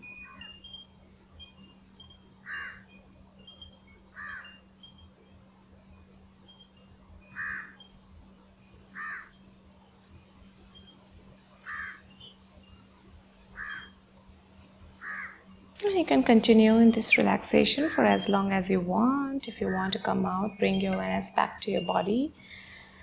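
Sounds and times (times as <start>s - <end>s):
steady low hum: 0.0s - 23.0s
short bird calls: 13.6s - 13.9s.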